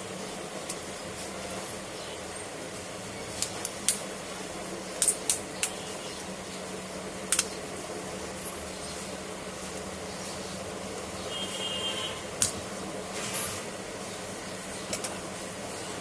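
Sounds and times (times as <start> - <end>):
steady low hum: 0.0 - 16.0
small clicks of plastic parts: 3.4 - 4.0, 7.3 - 7.6, 14.9 - 15.2.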